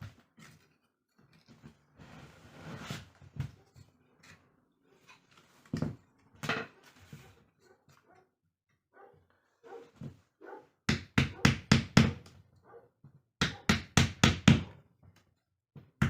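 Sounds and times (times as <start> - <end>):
rustling scrapes: 0.3 - 5.7, 6.8 - 7.8.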